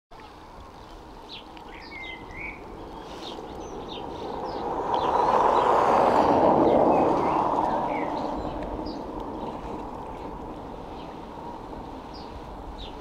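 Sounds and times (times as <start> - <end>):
small birds chirping: 0.2 - 13.0
rushing noise: 2.6 - 13.0.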